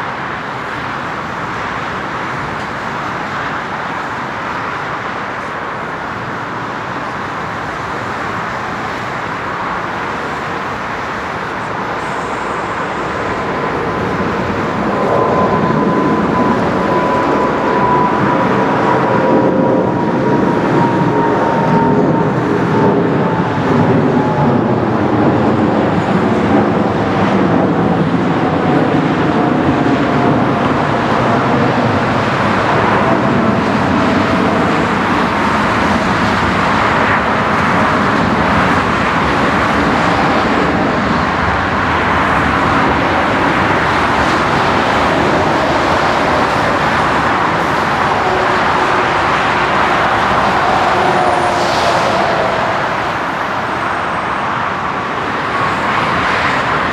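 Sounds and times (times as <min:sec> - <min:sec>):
jet airliner roar: 0:00.0 - 0:56.9
faint whining tones: 0:09.5 - 0:24.9, 0:41.6 - 0:54.4.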